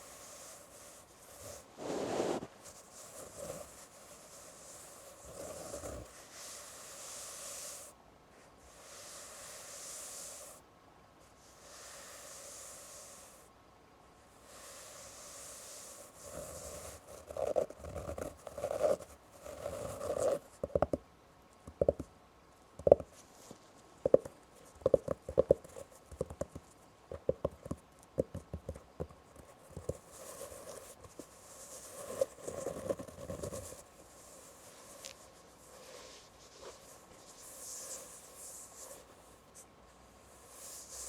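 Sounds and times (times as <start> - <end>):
fingernails scratching on fabric: 0.0 - 7.9, 14.5 - 20.8, 24.0 - 39.4
quick irregular fingernail taps: 20.3 - 22.2, 22.8 - 23.2, 24.0 - 30.1.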